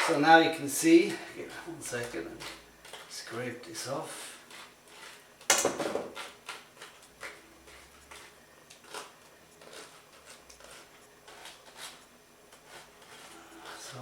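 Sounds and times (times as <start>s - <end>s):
utensil scraping wire strainer: 6.1s - 14.0s.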